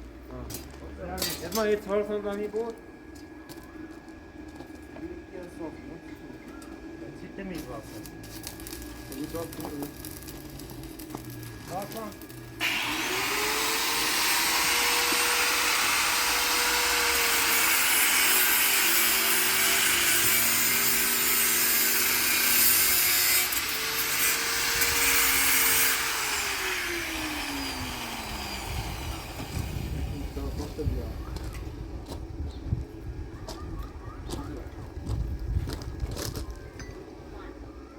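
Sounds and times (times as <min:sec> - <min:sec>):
electric grinder grinding steel: 0:08.4 - 0:30.4.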